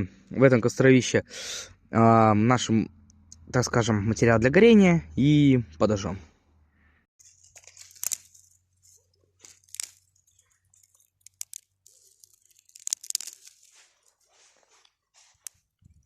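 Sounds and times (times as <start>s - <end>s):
dry grass and sticks rustling: 7.2s - 16.0s
sticks snapping: 7.4s - 15.6s.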